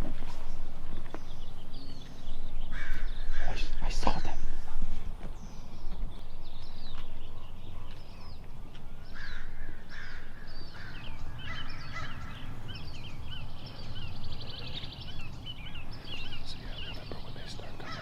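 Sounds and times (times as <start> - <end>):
birds chirping: 0.0 - 18.0
harsh low bird calls: 0.0 - 18.0
rapid bird trill: 5.5 - 18.0.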